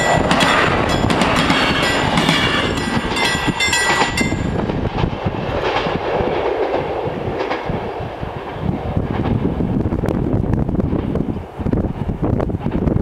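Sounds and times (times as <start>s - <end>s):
crossing bells ringing: 0.0s - 4.7s
train rumble: 0.0s - 13.0s
train wheels clicking on rails: 0.0s - 13.0s.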